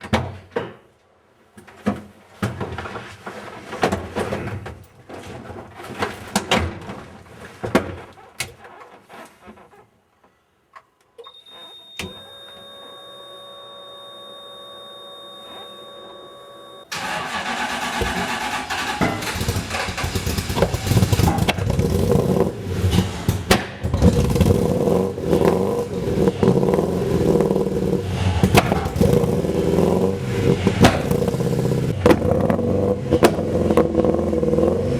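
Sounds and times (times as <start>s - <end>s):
steady whine with held tones: 11.3s - 16.9s
engine starting and revving: 16.9s - 34.9s
knocks and clatter: 18.9s - 33.9s.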